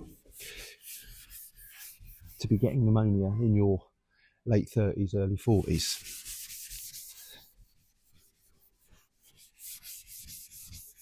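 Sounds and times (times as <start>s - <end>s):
hand sanding scratchy strokes: 0.0s - 2.8s, 5.5s - 11.0s.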